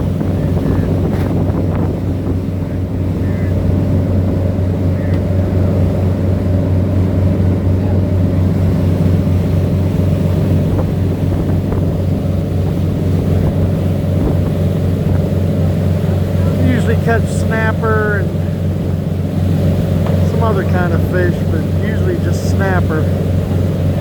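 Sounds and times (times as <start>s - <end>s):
wind on microphone: 0.0s - 6.4s, 10.2s - 16.7s
boat diesel engines droning: 0.0s - 24.0s.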